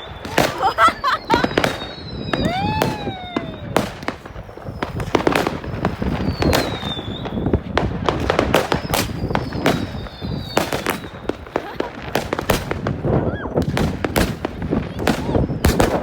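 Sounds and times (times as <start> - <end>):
firework whistle falling in pitch: 0.0 - 7.6
fireworks bangs and crackles: 0.0 - 16.0.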